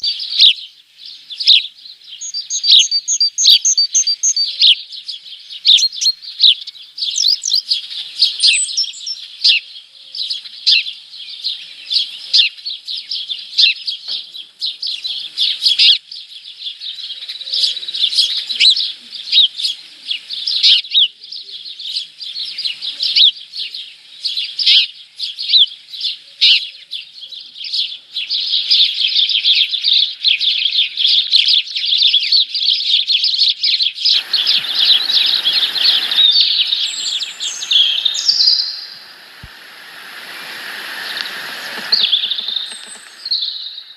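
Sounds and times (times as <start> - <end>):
songbirds chirping: 0.0 - 31.9, 32.5 - 43.9.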